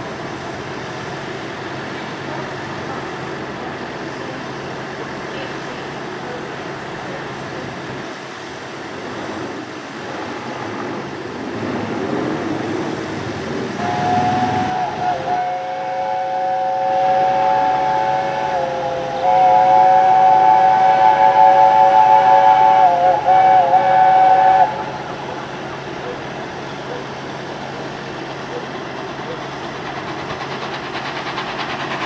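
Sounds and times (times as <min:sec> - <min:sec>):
train rumble: 0:00.0 - 0:32.0
steam locomotive chime whistle: 0:13.8 - 0:25.0.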